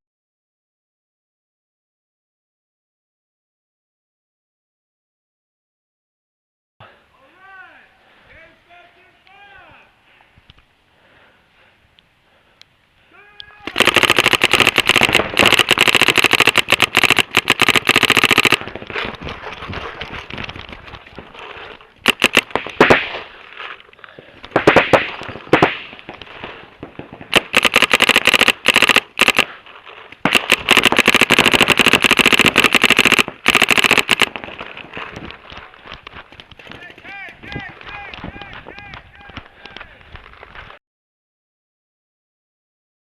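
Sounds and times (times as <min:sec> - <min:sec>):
paintball markers firing rapidly: 0:13.7 - 0:19.1, 0:22.0 - 0:23.2, 0:27.2 - 0:29.6, 0:30.2 - 0:34.8
loud separate pops: 0:22.0 - 0:23.3, 0:24.4 - 0:26.2.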